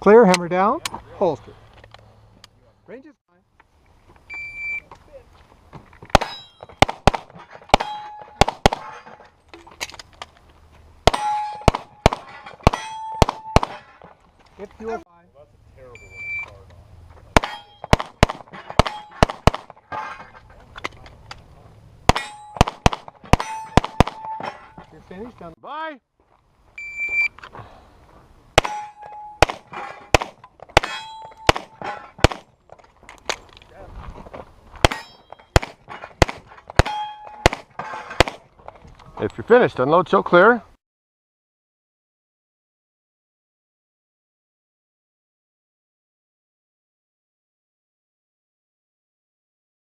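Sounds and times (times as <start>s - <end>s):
pistol shots: 6.1s - 8.9s, 11.1s - 13.8s, 17.4s - 19.8s, 22.1s - 24.4s, 28.6s - 32.5s, 34.8s - 38.4s
steel targets clanging: 6.1s - 9.9s, 11.1s - 14.2s, 17.2s - 21.1s, 22.1s - 25.4s, 28.6s - 32.3s, 34.8s - 38.4s
shot timer beep: 26.8s - 27.3s.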